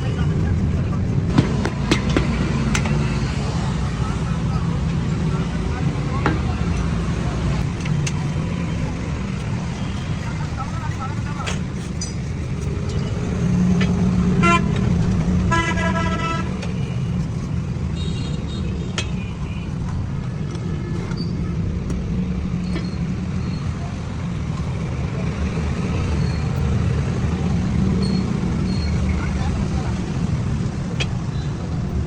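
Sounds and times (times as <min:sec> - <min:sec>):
road traffic rumble: 0:00.0 - 0:32.0
vehicle horn tooting: 0:14.4 - 0:14.8, 0:15.5 - 0:16.7.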